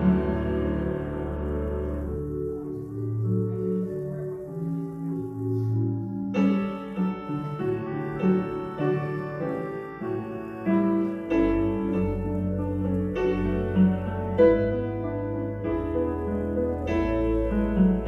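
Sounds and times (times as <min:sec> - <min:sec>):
deep piano bass: 0:00.0 - 0:18.0
slow piano chords: 0:00.0 - 0:18.0.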